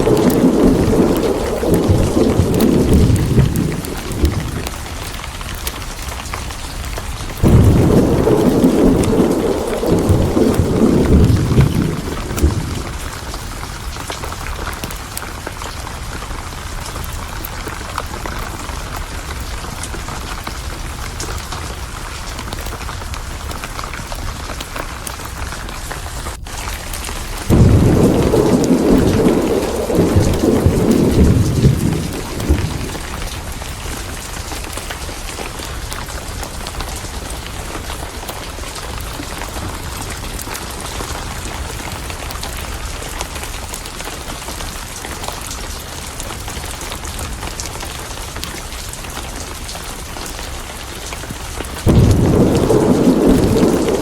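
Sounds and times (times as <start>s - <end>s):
thunderclap rumbling: 0.0s - 15.8s, 25.3s - 45.5s, 49.0s - 54.0s
steady rain: 0.0s - 54.0s.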